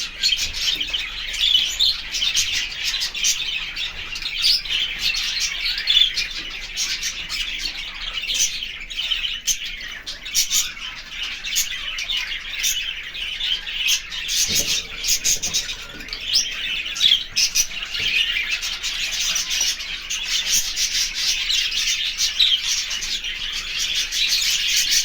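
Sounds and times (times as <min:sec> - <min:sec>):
small birds twittering: 0:00.0 - 0:25.0.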